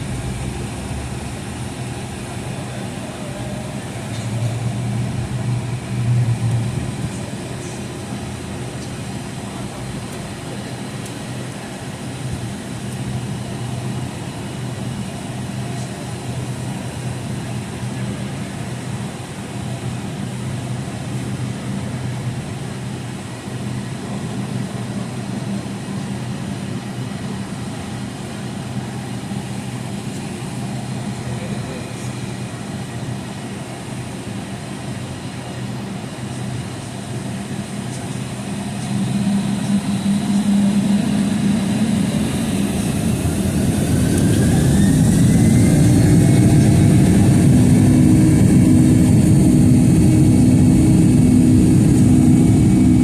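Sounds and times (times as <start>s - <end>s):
jet engines spooling up: 36.4s - 53.0s.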